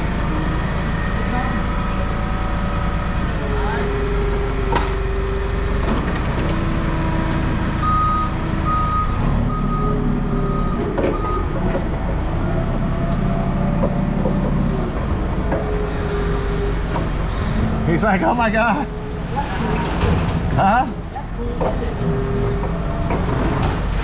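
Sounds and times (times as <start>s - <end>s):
heavy vehicle engine running: 0.0s - 24.0s
reversing alarm beeps: 7.8s - 11.5s.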